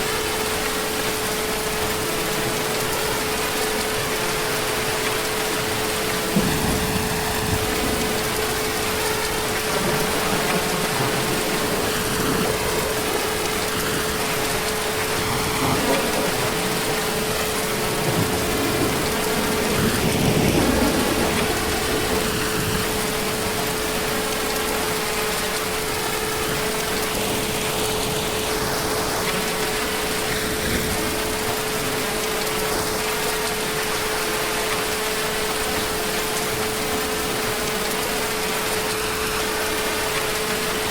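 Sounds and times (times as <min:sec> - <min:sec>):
heavy rain: 0:00.0 - 0:40.9
distant thunder rumble: 0:06.1 - 0:24.5.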